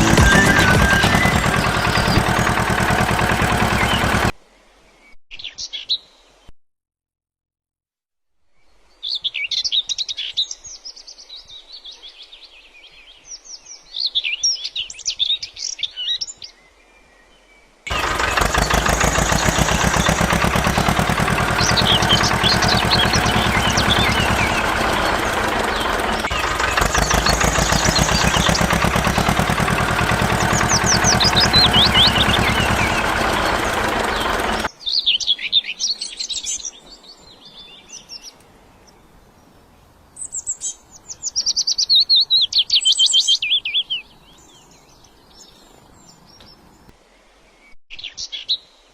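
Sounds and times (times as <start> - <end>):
loud pulsing machine buzz: 0.0 - 4.3, 17.9 - 34.7
small birds chirping: 0.0 - 4.3, 17.9 - 46.9.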